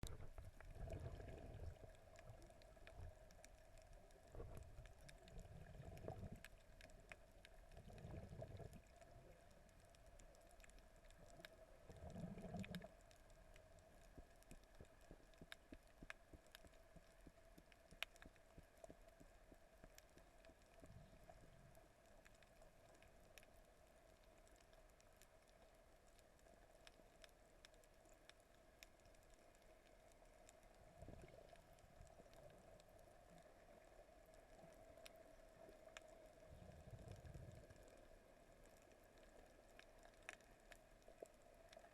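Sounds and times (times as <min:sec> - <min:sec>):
surges of moving water: 0:00.0 - 0:15.3
crackling clicks underwater: 0:00.0 - 0:41.9
faint hum: 0:00.0 - 0:41.9.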